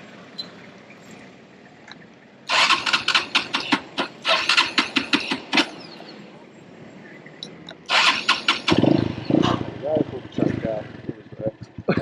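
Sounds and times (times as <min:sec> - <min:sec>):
motorbike engine sputtering: 0:02.5 - 0:06.2, 0:07.4 - 0:12.0.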